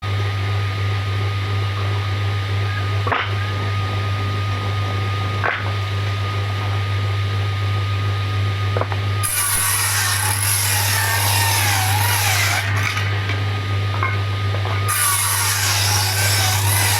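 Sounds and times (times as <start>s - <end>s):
power tool humming: 8.8s - 16.9s
saw rasping into wood: 9.2s - 13.0s, 14.9s - 16.9s.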